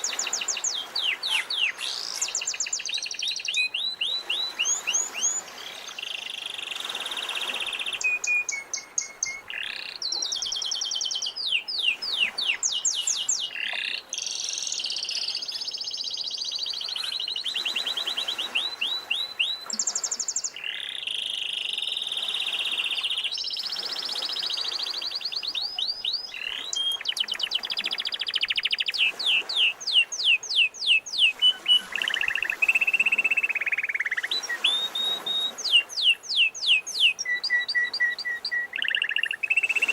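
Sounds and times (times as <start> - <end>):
canary singing: 25.2 - 39.9.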